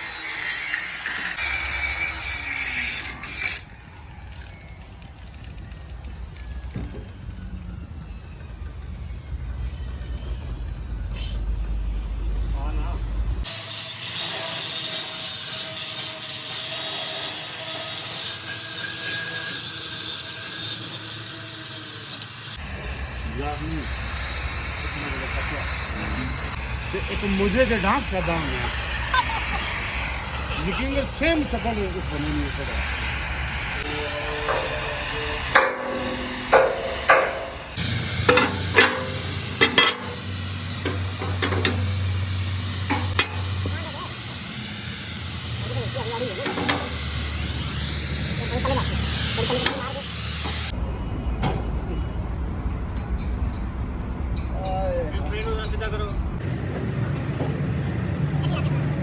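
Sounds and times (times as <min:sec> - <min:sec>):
rasping power tool: 0:00.0 - 0:11.6, 0:13.4 - 0:50.7
low machine hum: 0:03.6 - 0:13.5, 0:22.6 - 0:50.7
sharp metal knocks: 0:34.4 - 0:42.0, 0:42.9 - 0:43.8.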